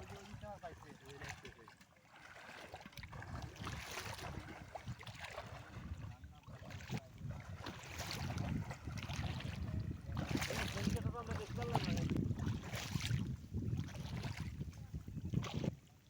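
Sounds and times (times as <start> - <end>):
wind buffeting microphone: 3.1 - 15.9.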